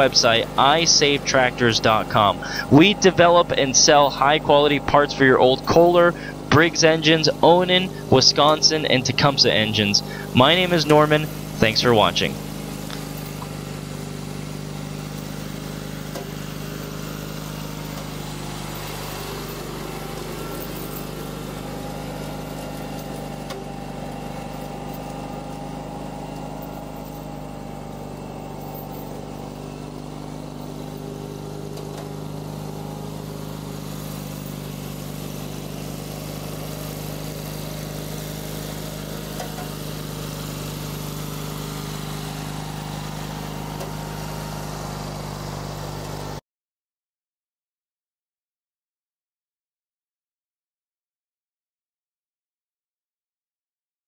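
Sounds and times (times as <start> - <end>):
garden tractor engine running: 0.0 - 46.4.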